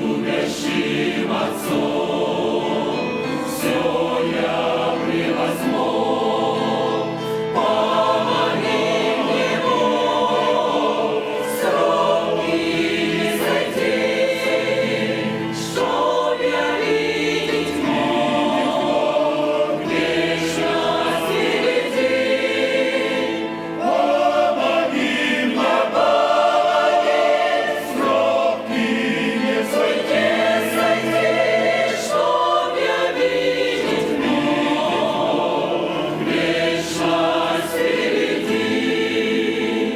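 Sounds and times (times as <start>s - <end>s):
church choir singing a hymn: 0.0s - 39.9s.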